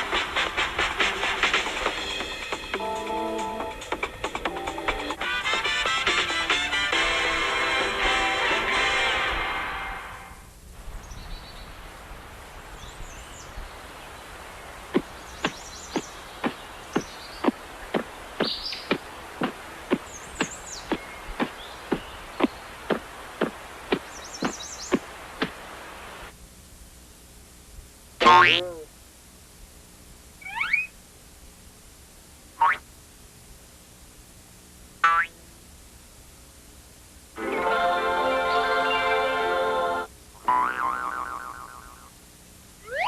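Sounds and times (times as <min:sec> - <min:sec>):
sharp taps: 0:15.0 - 0:25.6
cartoon sound effect wobbling pitch: 0:28.2 - 0:28.8, 0:30.4 - 0:30.9, 0:32.6 - 0:32.8, 0:40.5 - 0:42.1
faint bird chirps: 0:30.4 - 0:31.0.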